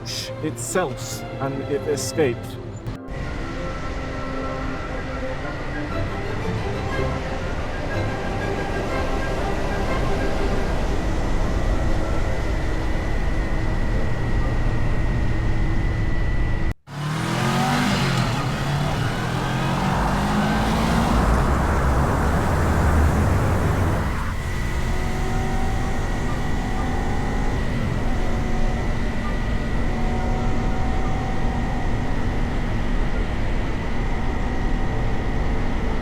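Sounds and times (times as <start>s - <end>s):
motorcycle engine revving: 16.9s - 33.7s.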